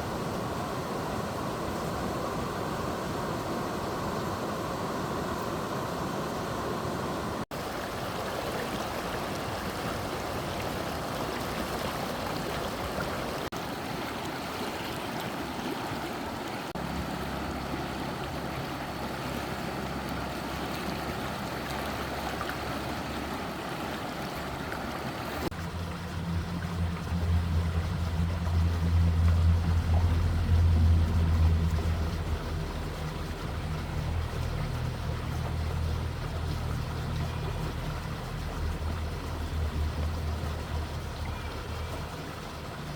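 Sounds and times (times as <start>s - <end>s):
stream water rushing: 0.0s - 42.9s
low motor hum: 16.7s - 42.9s.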